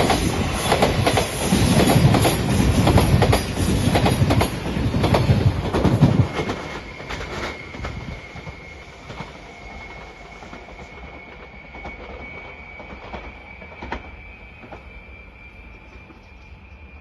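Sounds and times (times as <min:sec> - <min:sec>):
train rumble: 0:00.0 - 0:17.0
steady high tone: 0:06.3 - 0:17.0.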